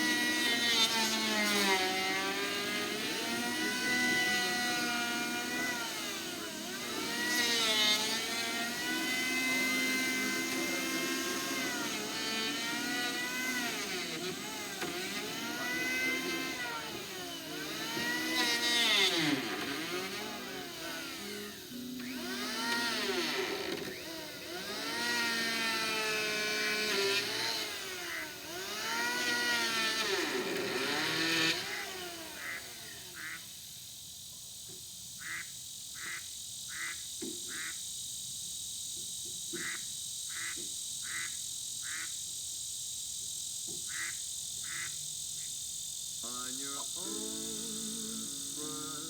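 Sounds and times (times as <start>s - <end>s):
motor revving: 0.0s - 33.6s, 46.3s - 49.0s
high insect drone: 0.0s - 49.0s
insects chirping: 2.0s - 49.0s.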